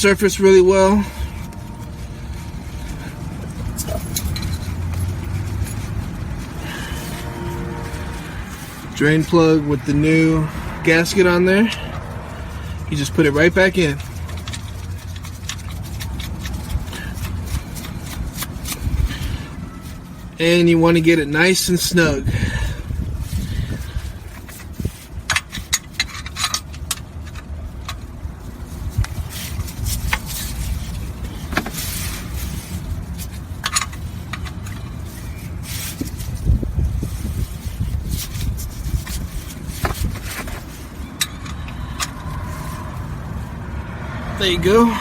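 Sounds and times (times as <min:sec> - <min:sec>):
metal wrench clinking and scraping: 0:00.0 - 0:10.2, 0:12.6 - 0:20.0, 0:23.7 - 0:43.2
low rumble: 0:00.6 - 0:10.9
light clicks and rustling: 0:13.9 - 0:20.0.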